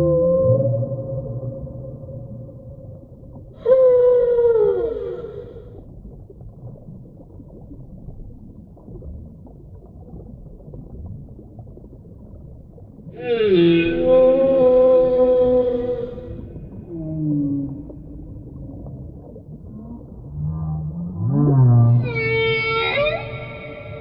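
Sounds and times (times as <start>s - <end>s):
whale calls: 0.0s - 5.8s, 13.1s - 24.0s.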